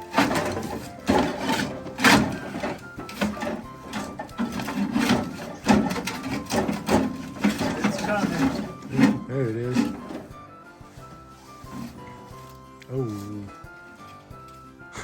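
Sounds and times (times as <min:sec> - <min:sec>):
knocks scrapes and rattles in microwave: 0:00.0 - 0:10.4.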